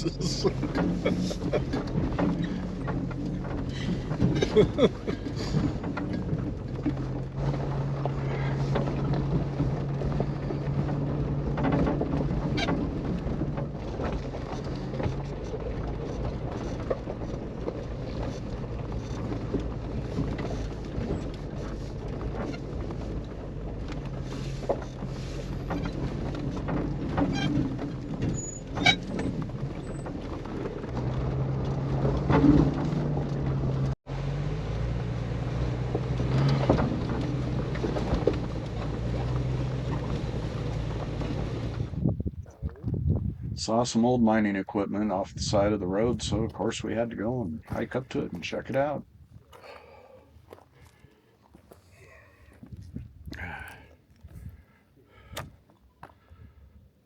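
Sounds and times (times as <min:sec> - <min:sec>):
knocks and rattles: 0:00.0 - 0:34.0, 0:35.8 - 0:43.3
low engine drone: 0:00.0 - 0:42.8, 0:43.6 - 0:52.6, 0:53.2 - 0:55.3
rumbling road noise: 0:00.0 - 0:57.0.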